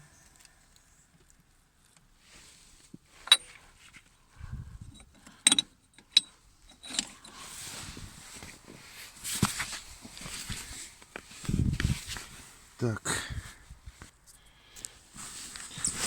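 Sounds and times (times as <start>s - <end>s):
metal tools clinking: 3.3s - 3.6s, 5.0s - 7.4s.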